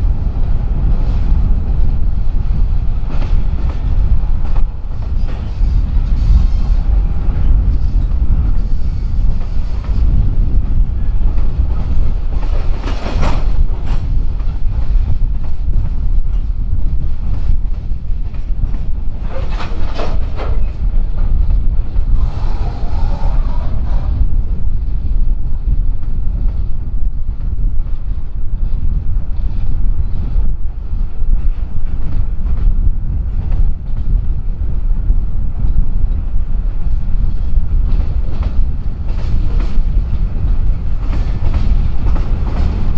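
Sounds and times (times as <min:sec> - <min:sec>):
freight train rumbling past: 0:00.0 - 0:42.9
train wheels clacking: 0:00.1 - 0:24.2, 0:35.6 - 0:42.9.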